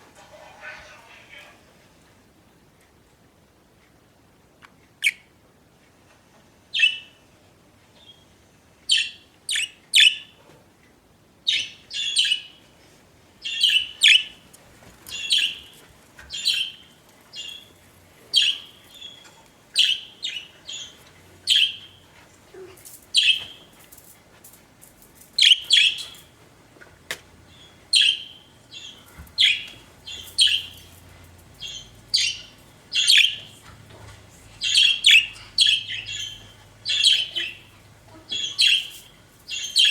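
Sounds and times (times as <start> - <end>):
budgerigars chirping: 11.5 - 12.6, 13.4 - 14.4, 15.1 - 22.0, 23.2 - 23.6, 25.4 - 26.2, 27.5 - 31.0, 31.6 - 33.6, 34.6 - 39.9.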